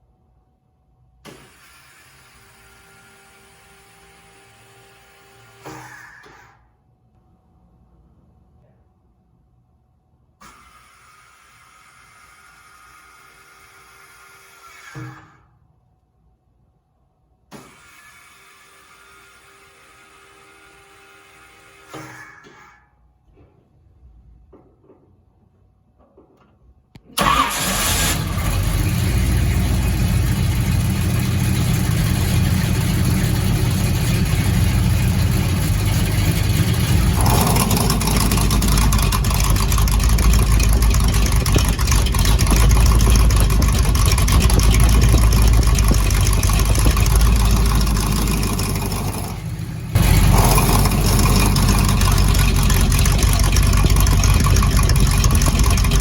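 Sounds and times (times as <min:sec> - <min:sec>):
vff engine idling: 0:27.2 - 0:56.0.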